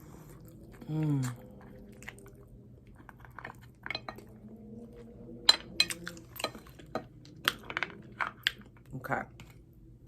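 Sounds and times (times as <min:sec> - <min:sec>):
faint low hum: 0:00.0 - 0:10.0
tableware clinking: 0:03.8 - 0:04.3.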